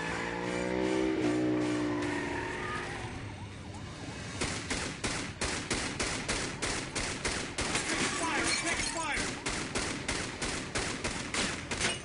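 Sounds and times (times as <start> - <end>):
vehicle engine: 0.0 - 12.0
rapid gunshots: 4.3 - 12.0.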